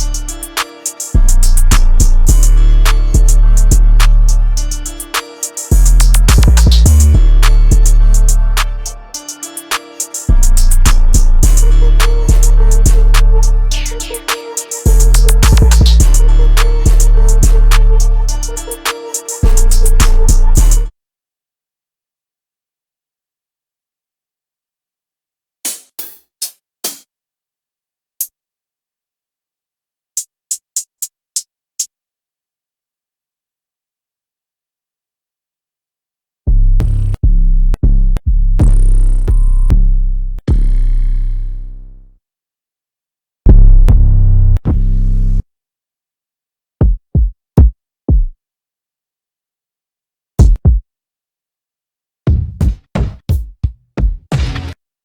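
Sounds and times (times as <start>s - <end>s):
clipped hi-hat ticks: 0.0s - 20.8s, 30.2s - 31.9s.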